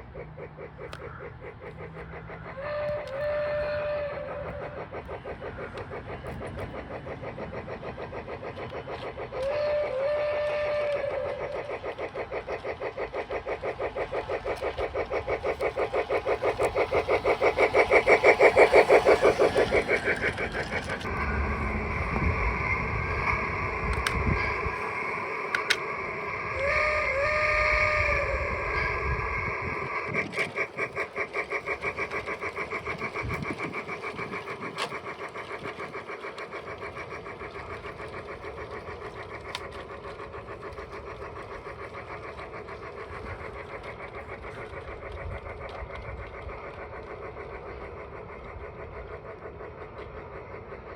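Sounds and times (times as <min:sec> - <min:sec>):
model train clattering past: 0:00.0 - 0:50.9.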